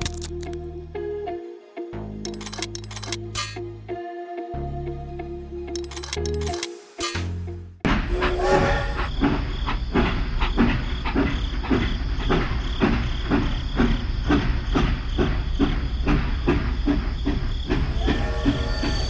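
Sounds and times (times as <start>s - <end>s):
repeating mechanical clatter: 2.3s - 3.6s, 5.8s - 7.2s.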